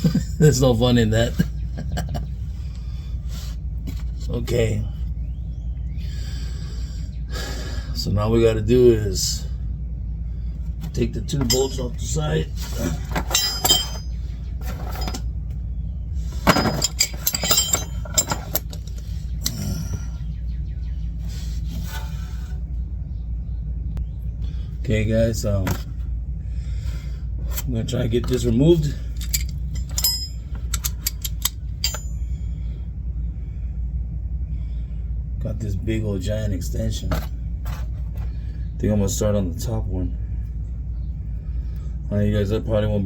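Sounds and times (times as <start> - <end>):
low rumble: 0.0 - 42.9
metal hand tools clinking: 11.4 - 12.2, 13.0 - 15.2, 16.4 - 19.6, 28.8 - 32.2.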